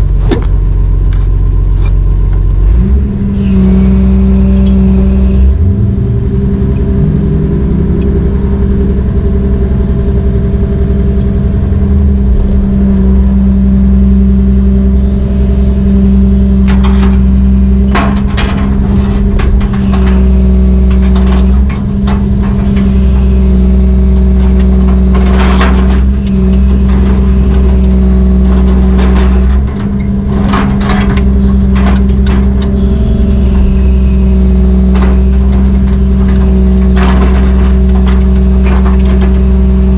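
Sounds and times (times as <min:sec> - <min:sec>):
diesel engine running: 0:00.0 - 0:39.9
metallic knocks and rattles: 0:16.1 - 0:39.9.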